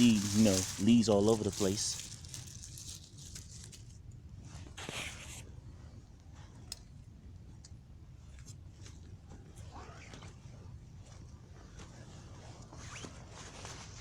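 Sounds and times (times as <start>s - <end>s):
dry leaves crunching underfoot: 0.0s - 3.9s.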